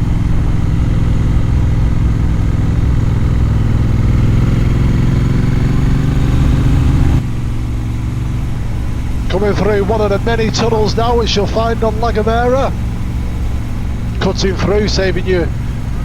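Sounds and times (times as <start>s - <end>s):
motorcycle engine accelerating: 0.0s - 16.0s
wind and road noise rumble: 0.0s - 16.0s.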